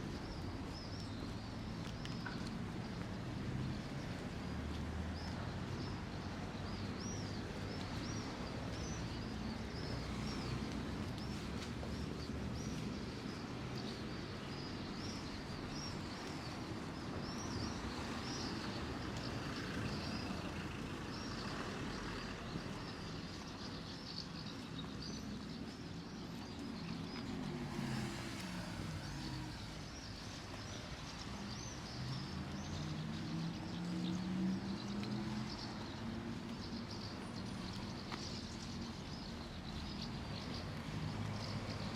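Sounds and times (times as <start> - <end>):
low traffic rumble: 0.0 - 41.9
small birds chirping: 0.0 - 41.9
car passing by: 26.4 - 41.9.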